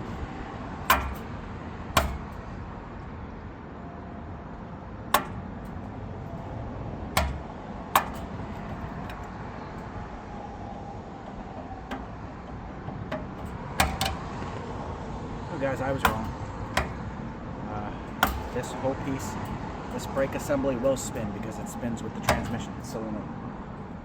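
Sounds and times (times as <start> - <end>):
sharp knocks of parts handled: 0.0 - 3.1, 4.6 - 10.1, 11.2 - 15.0, 15.7 - 17.4, 18.0 - 21.3, 22.2 - 23.0
steady background noise: 0.0 - 24.0.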